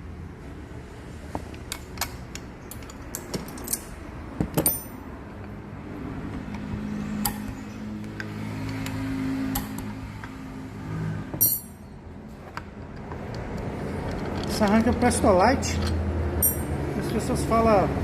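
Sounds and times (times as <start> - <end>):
engine hum: 0.0 - 18.0
metal tools clinking: 1.7 - 4.0, 4.6 - 5.1, 11.4 - 12.0, 14.0 - 16.8.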